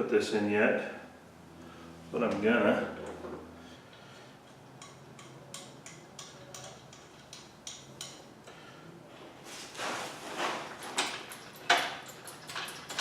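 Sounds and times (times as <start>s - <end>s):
metal parts clicking: 4.8s - 8.6s, 10.8s - 13.0s.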